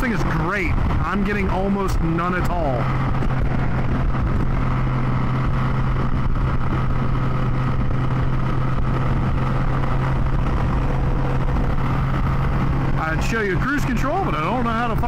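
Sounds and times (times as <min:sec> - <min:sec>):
motorcycle engine cruising: 0:00.0 - 0:15.0
wind and road noise: 0:00.0 - 0:15.0.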